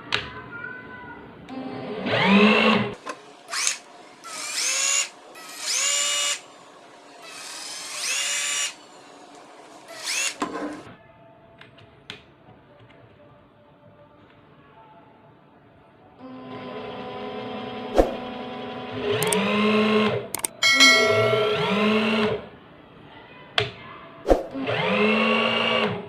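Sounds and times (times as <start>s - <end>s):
cordless drill motor whining: 1.6s - 6.5s, 7.1s - 10.8s, 24.6s - 26.0s.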